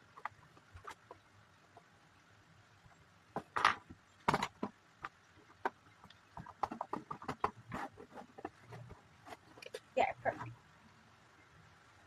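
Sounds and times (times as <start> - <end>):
plastic bricks clicking and knocking: 3.3 - 8.9.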